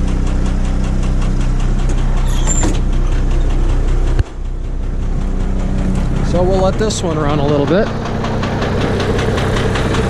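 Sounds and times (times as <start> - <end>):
diesel engine idling: 0.0 - 10.0
brief high squeak: 2.2 - 2.8.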